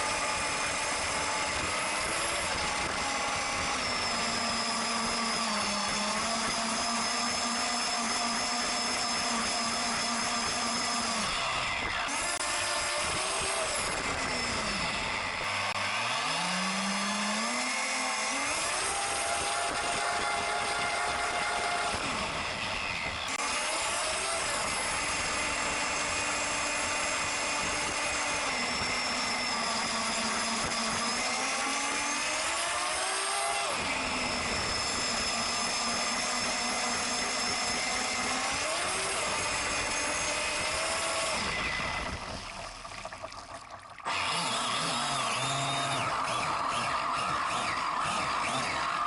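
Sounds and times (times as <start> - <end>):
rc boat motor whining: 0.0 - 49.0.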